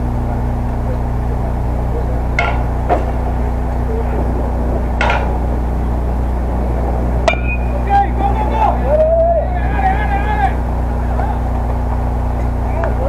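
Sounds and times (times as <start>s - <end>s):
steady low hum: 0.0s - 13.0s
sharp knocks: 2.4s - 3.4s, 4.9s - 5.9s.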